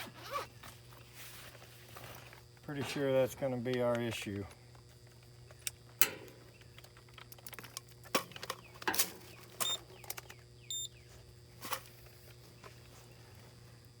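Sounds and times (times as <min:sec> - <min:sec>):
steady low hum: 0:00.0 - 0:14.0
short electronic beeps: 0:10.7 - 0:10.9.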